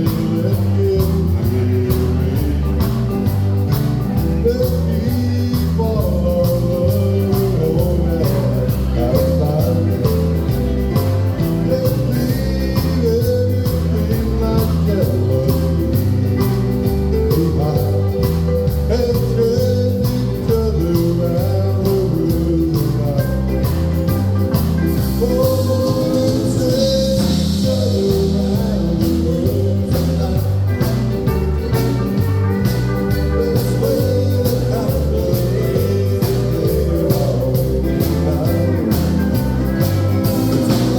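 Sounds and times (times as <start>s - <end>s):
live country band playing: 0.0s - 40.9s
person singing: 0.0s - 40.9s.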